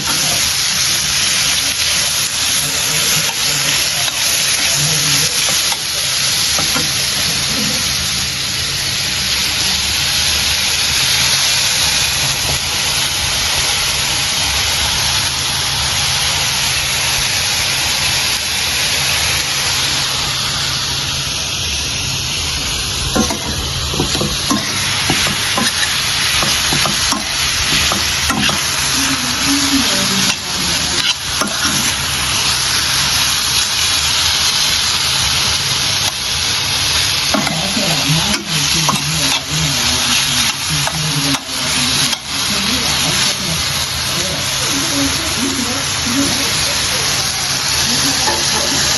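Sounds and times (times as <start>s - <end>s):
food frying in hot oil: 0.0s - 48.9s
spoon knocking on pot: 6.6s - 7.0s, 23.2s - 28.7s, 30.2s - 31.9s, 37.3s - 39.5s.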